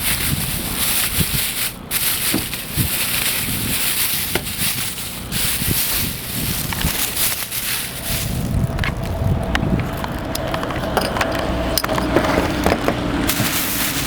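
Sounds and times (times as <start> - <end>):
steady rustling: 0.0 - 14.0.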